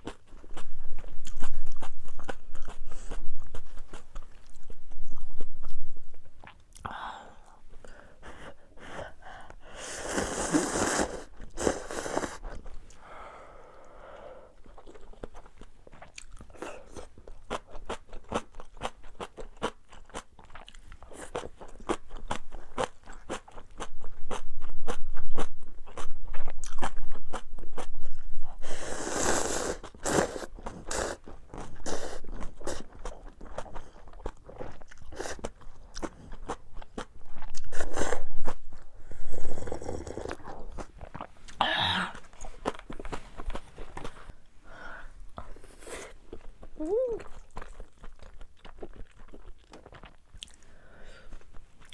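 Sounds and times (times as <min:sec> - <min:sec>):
person chewing with crunches: 0:00.0 - 0:13.1, 0:13.8 - 0:44.5, 0:45.2 - 0:51.9.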